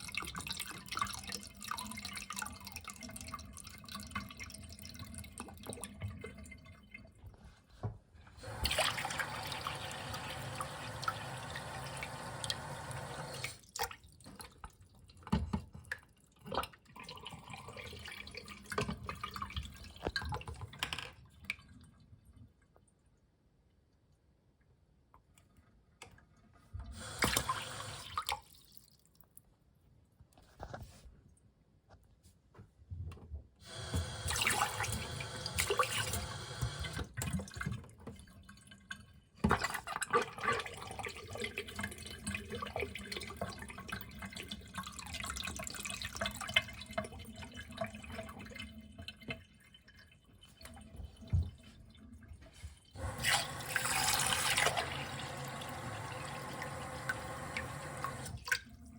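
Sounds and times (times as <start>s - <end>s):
water running and splashing: 8.4s - 13.6s, 53.0s - 58.5s.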